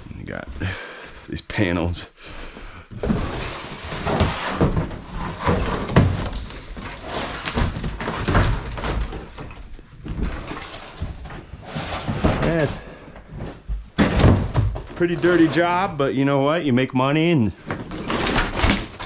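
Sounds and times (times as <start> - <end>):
debris scraping and rustling: 3.0 - 16.0, 17.6 - 19.0.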